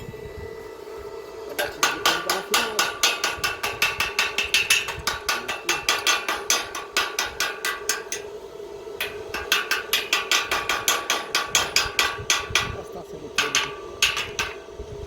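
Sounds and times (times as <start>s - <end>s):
hammer tapping on iron gate: 1.6s - 8.3s, 9.0s - 12.8s, 13.4s - 14.7s.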